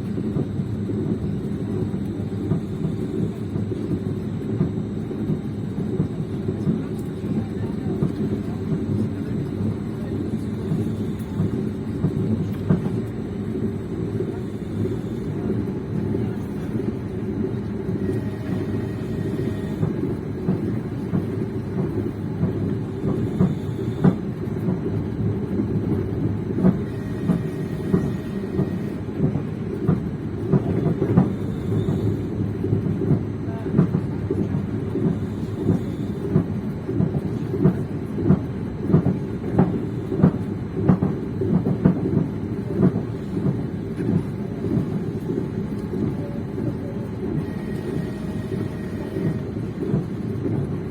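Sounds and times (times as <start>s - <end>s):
train wheels clacking over rails: 2.1s - 50.9s.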